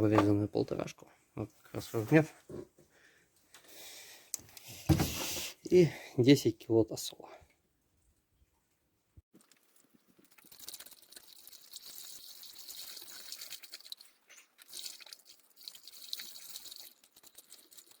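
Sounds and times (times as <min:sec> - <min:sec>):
liquid pouring into funnel: 0:09.4 - 0:18.0.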